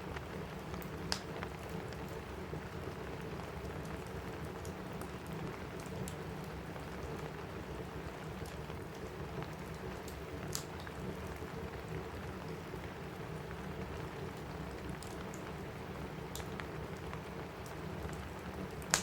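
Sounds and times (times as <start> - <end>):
rain on a roof: 0.0 - 19.0
small sharp crackles: 0.2 - 2.2, 8.4 - 11.0, 16.2 - 19.0.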